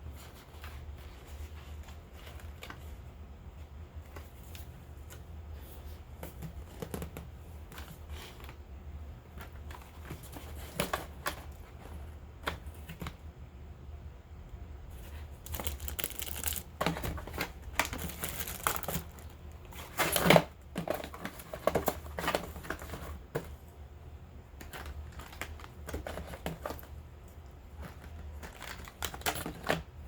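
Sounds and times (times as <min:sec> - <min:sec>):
low steady hum: 0:00.0 - 0:30.0
hands handling packaging: 0:14.9 - 0:23.5, 0:24.6 - 0:27.0, 0:27.7 - 0:29.9.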